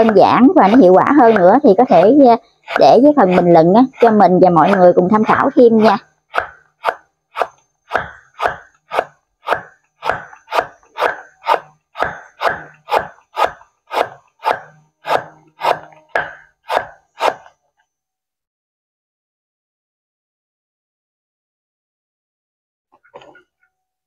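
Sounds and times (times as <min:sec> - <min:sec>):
cleaver chopping on wooden block: 0:00.0 - 0:04.9, 0:05.8 - 0:17.5.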